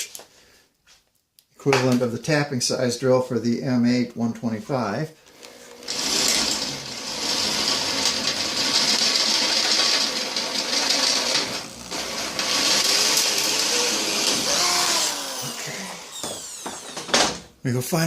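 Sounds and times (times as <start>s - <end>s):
electric drill boring: 5.3s - 17.4s.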